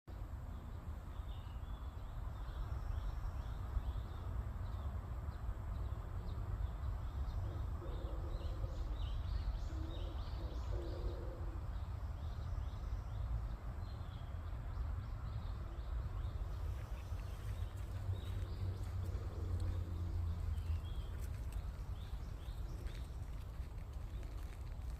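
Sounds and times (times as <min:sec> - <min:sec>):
small birds chirping: 0:00.5 - 0:24.9
steady low rumble: 0:00.5 - 0:24.9
low held bird calls: 0:07.0 - 0:13.4.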